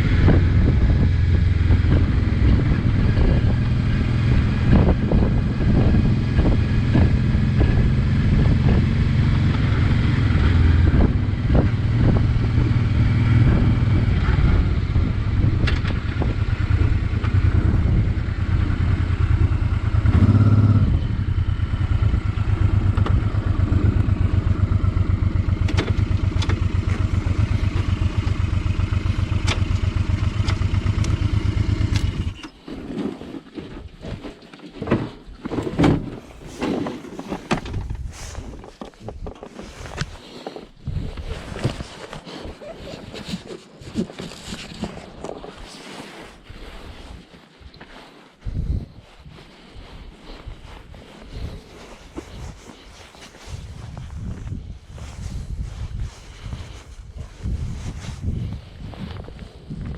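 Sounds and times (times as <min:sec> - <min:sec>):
motorcycle engine pulsing: 0:00.0 - 0:32.6.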